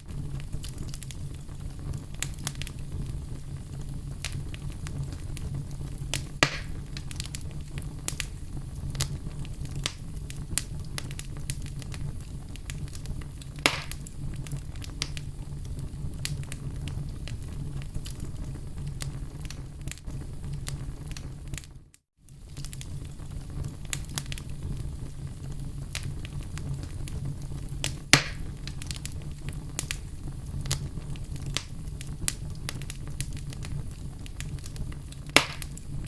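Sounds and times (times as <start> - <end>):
fire crackling in fireplace: 0.0 - 36.0
low rumble of fire: 0.0 - 36.0
sharp pops: 6.1 - 7.1, 13.6 - 14.1, 28.1 - 28.5, 35.3 - 35.8.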